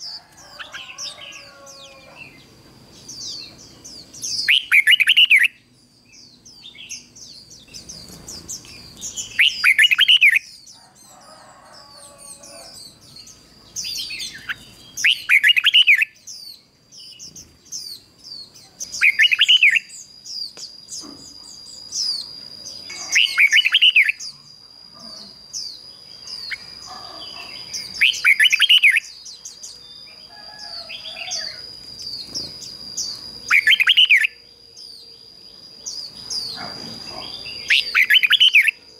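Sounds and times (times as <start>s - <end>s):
faint high chirps: 0.0s - 38.9s
steady high-pitched tone: 20.9s - 26.8s.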